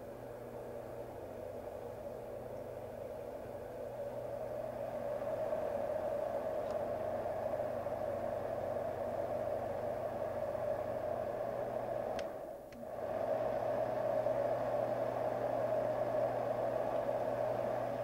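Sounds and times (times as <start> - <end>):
white noise fan machine running: 0.0 - 18.0
clicks: 12.1 - 12.8.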